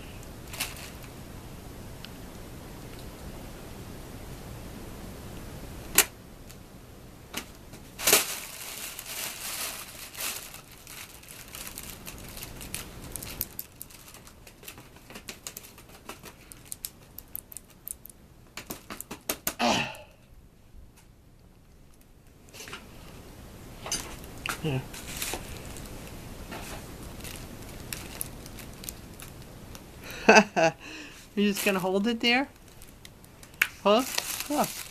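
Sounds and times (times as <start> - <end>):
crinkling rustles: 0.2 - 1.2, 7.3 - 19.2, 21.0 - 30.0, 30.9 - 34.9.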